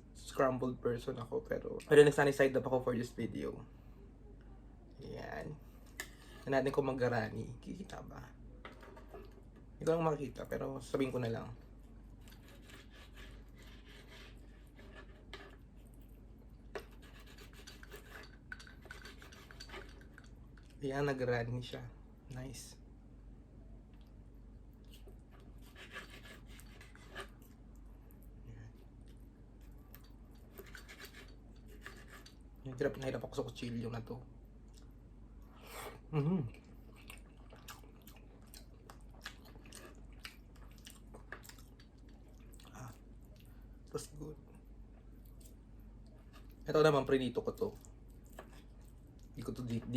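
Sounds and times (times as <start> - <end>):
person chewing food: 11.7 - 20.8, 23.9 - 32.5, 34.4 - 43.9, 47.6 - 49.4
cutlery scraping on a plate: 16.8 - 20.3, 25.8 - 27.4, 30.5 - 32.4.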